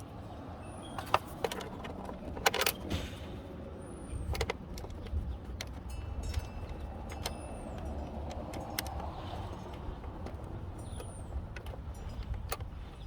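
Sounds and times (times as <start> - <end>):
metal screws clicking and tapping: 4.3 - 13.0.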